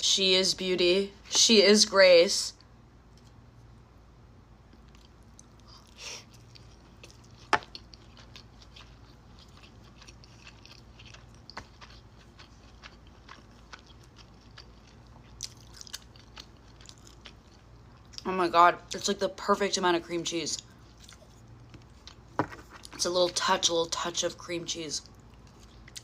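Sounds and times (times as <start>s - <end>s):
chewing sushi: 4.7s - 18.2s, 20.6s - 23.0s, 25.0s - 26.0s.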